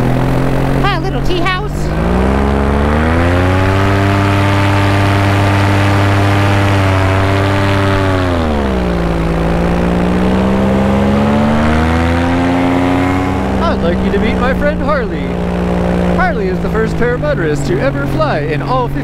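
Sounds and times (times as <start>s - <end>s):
paramotor engine running: 0.0s - 19.0s.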